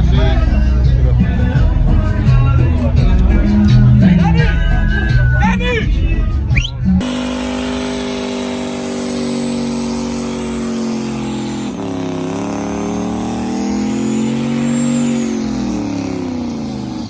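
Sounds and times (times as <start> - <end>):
truck engine revving high: 6.0 - 17.0.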